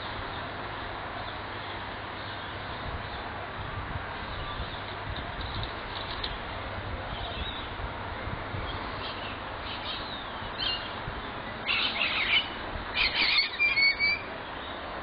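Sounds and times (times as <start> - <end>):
low background noise: 0.0 - 15.0
harsh bird squawks: 11.6 - 14.3.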